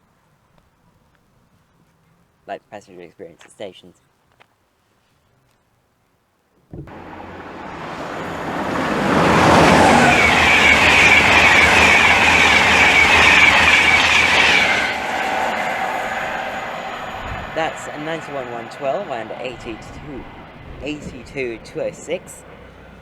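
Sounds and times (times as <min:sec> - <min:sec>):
train passing at speed: 0:06.9 - 0:23.0.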